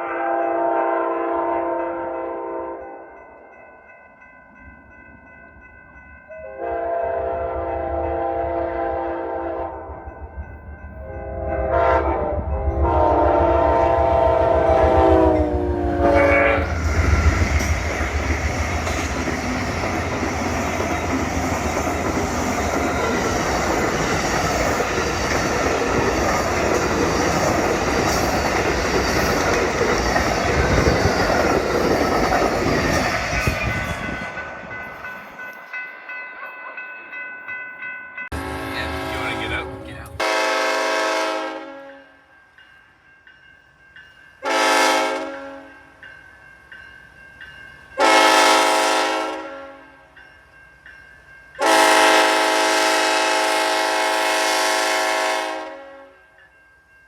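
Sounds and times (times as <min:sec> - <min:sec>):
train horn blasts: 0:00.0 - 0:03.0, 0:06.4 - 0:10.0, 0:11.0 - 0:16.8, 0:38.3 - 0:42.2, 0:44.4 - 0:45.8, 0:48.0 - 0:50.0, 0:51.6 - 0:56.2
train passing with rumble: 0:00.0 - 0:57.0.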